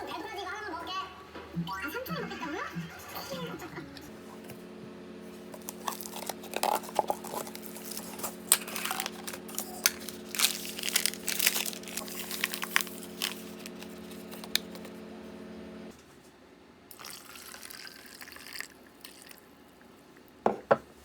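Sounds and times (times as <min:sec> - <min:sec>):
plastic wrapper crinkling and tearing: 0:05.6 - 0:15.0.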